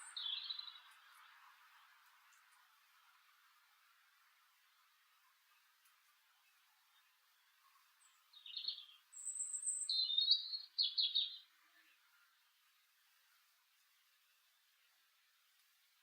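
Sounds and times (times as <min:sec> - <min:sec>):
small songbird singing: 0:00.0 - 0:02.6, 0:06.4 - 0:12.0.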